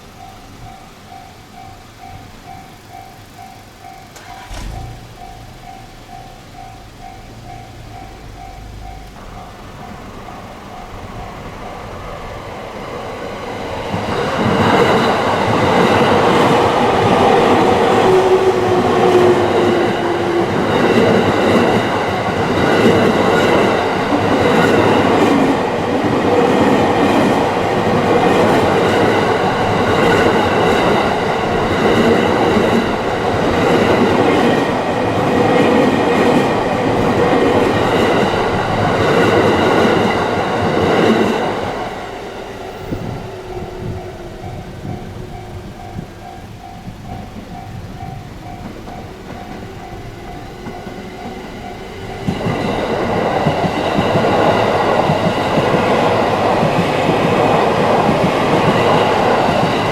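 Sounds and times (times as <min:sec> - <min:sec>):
crossing warning bell ringing: 0:00.0 - 0:59.9
train passing: 0:00.0 - 0:59.9.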